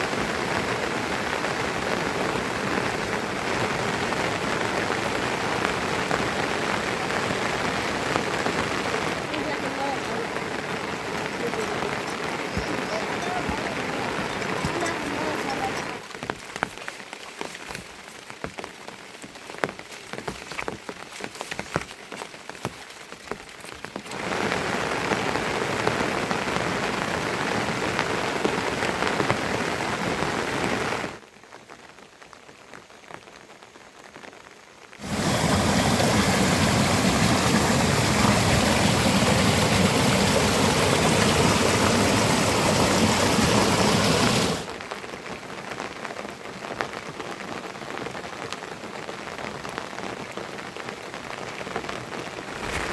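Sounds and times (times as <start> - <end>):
rain downpour: 0.0 - 52.9
rain drips: 0.0 - 52.9.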